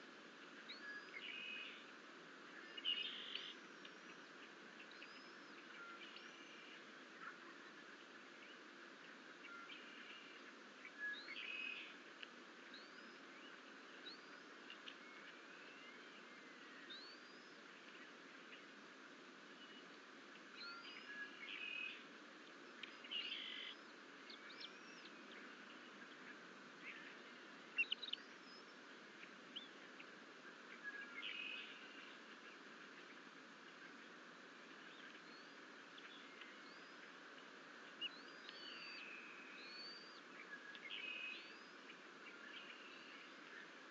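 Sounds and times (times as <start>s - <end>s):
steady outdoor hiss: 0.0s - 43.9s.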